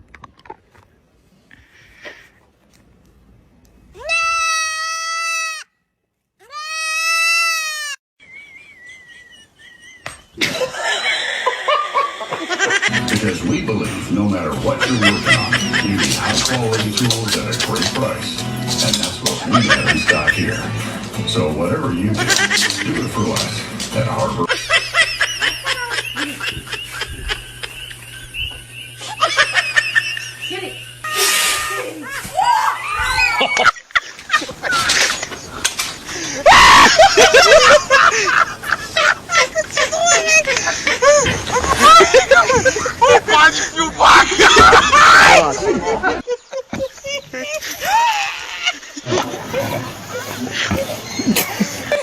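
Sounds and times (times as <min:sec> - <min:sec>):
people laughing: 0:08.2 - 0:52.0
steady low hum: 0:12.8 - 0:32.4.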